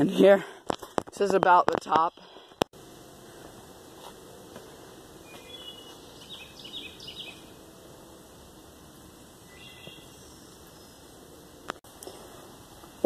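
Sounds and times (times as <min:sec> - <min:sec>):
steady outdoor hiss: 0:00.2 - 0:13.0
small bird chirping: 0:05.2 - 0:07.5, 0:09.5 - 0:11.1.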